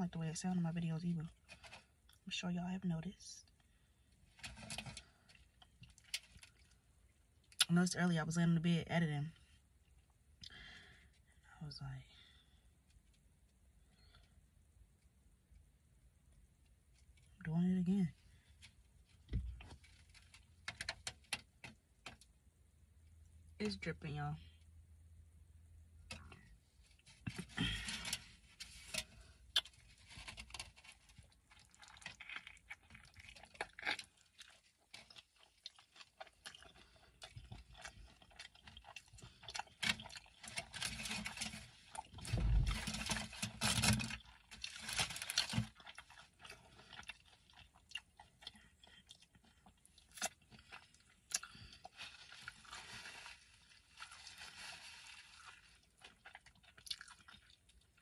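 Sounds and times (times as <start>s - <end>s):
burrito being bitten and chewed: 3.6s - 7.7s, 18.3s - 22.3s, 26.0s - 58.0s.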